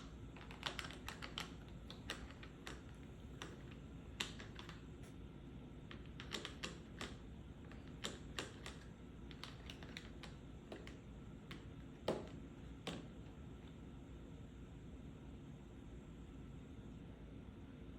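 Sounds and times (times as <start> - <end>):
tapping on a pill box: 0.4 - 4.8, 5.9 - 13.2.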